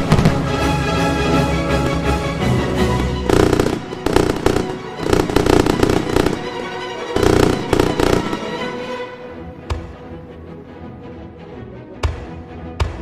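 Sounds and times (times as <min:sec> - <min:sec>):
fireworks bursting and crackling: 0:00.0 - 0:00.7, 0:03.3 - 0:08.8
background music: 0:00.0 - 0:13.0.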